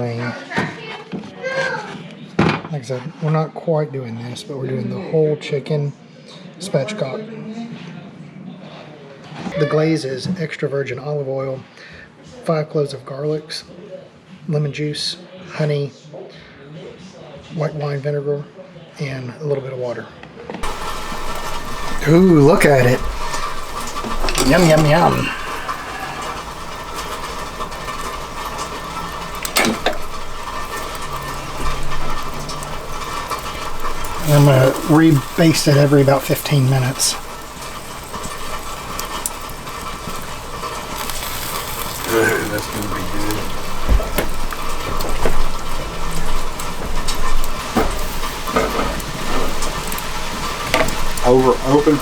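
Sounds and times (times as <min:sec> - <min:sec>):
chicken sizzling on grill: 0:20.6 - 0:52.0.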